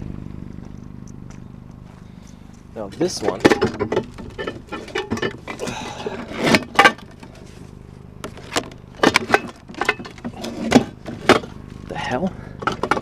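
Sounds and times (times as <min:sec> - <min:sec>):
steady low hum: 0:00.0 - 0:13.0
junk knocking and clattering: 0:02.8 - 0:07.5, 0:08.2 - 0:13.0.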